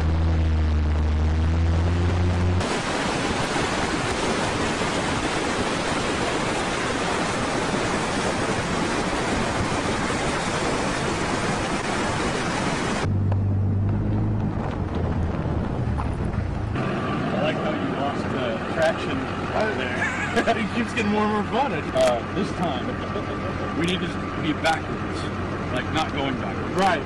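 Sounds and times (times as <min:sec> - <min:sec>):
low engine hum: 0:00.0 - 0:27.0
wind buffeting microphone: 0:02.6 - 0:19.5.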